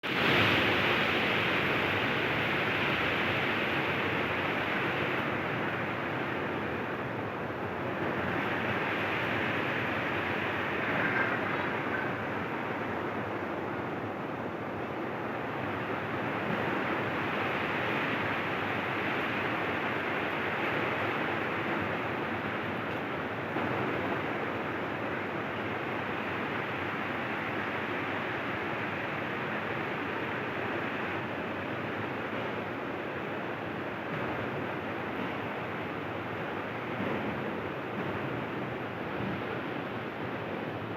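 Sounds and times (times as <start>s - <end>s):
heavy rain falling: 0.0s - 7.0s.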